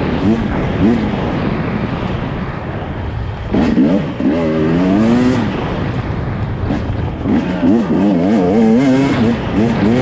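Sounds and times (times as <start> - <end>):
dirt bike engine revving: 3.4 - 10.0.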